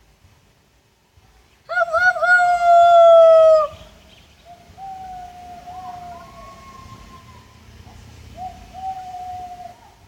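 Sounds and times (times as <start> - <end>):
distant howling: 4.6 - 10.0.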